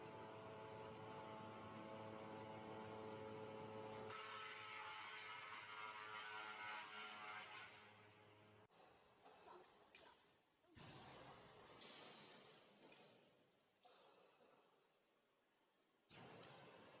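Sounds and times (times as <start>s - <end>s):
wood chipper humming: 0.0s - 4.8s.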